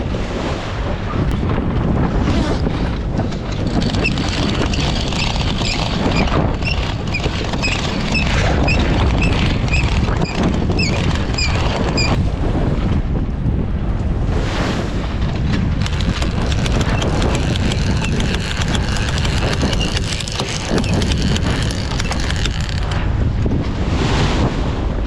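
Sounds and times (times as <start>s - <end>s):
sea wash: 0.0s - 25.0s
wind buffeting microphone: 0.0s - 25.0s
small knocks and ticks: 15.8s - 23.0s.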